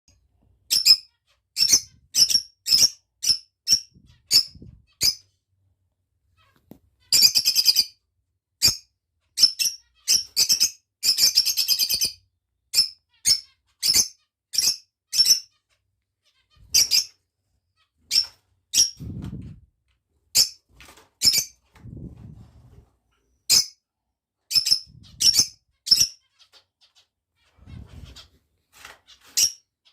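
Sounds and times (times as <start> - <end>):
lovebirds chirping: 9.4 - 19.1, 24.5 - 28.4.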